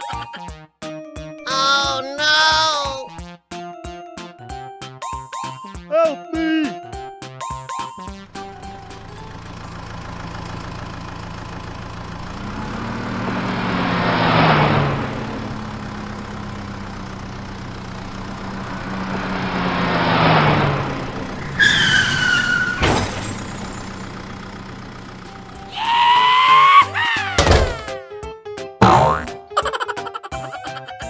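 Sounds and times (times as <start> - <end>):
cartoon vehicles driving past: 8.2 - 27.9, 28.8 - 29.3
cartoon engine hum: 8.3 - 27.9, 28.8 - 29.3
sliding whistle-like tone: 21.4 - 23.0.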